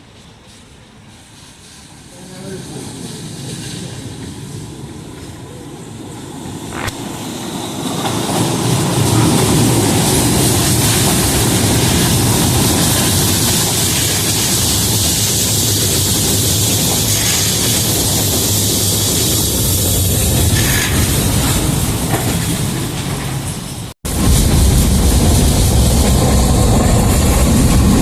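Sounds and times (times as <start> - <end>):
tram rumbling on rails: 0.0 - 28.0.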